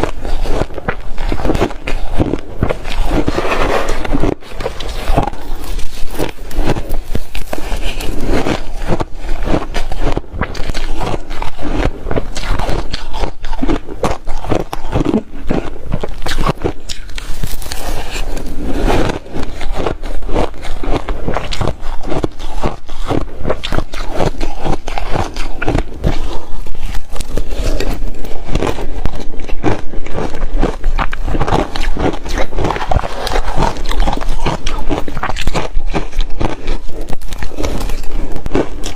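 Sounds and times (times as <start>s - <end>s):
chewing ice crunches: 0.0s - 38.9s.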